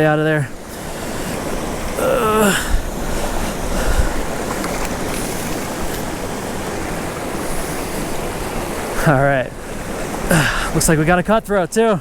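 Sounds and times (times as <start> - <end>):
creek water rushing over rocks: 0.0 - 12.0.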